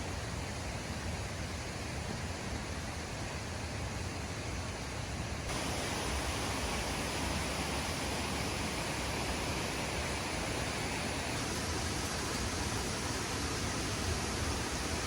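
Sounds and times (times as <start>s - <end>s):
waterfall rushing: 5.5s - 15.0s.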